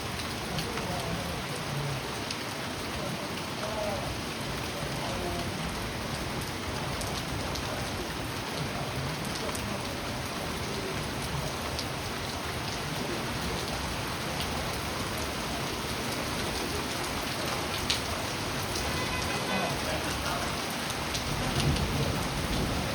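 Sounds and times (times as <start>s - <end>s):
steady rain falling: 0.0s - 22.9s
sharp raindrop ticks: 16.0s - 19.2s, 19.9s - 22.9s.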